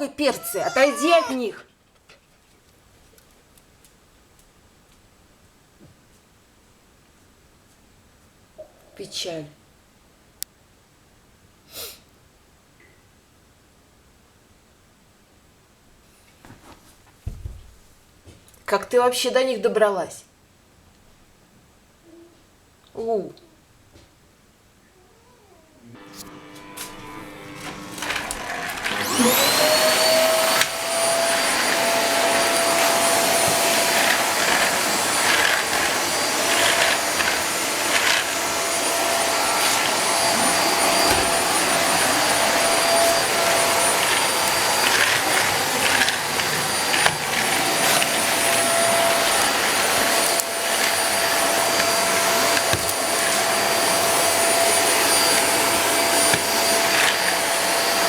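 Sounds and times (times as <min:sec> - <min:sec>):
vacuum cleaner motor whine: 0:25.8 - 0:58.0.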